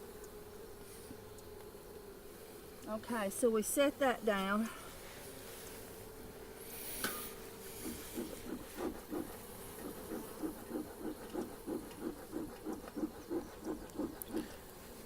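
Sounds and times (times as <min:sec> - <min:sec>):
smoker bellows hissing puffs: 0:06.6 - 0:15.0.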